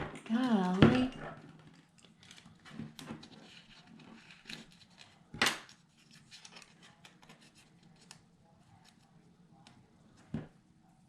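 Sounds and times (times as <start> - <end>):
paper rustling and scraping: 2.1 - 8.2.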